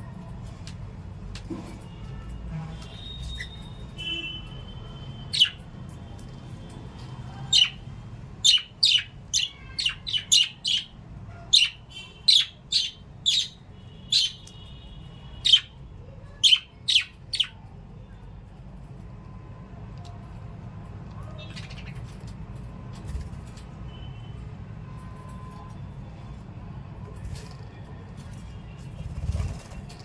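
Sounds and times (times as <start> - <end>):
parrots chirping: 3.0 - 4.1, 5.0 - 5.7, 7.2 - 14.6, 15.4 - 17.6.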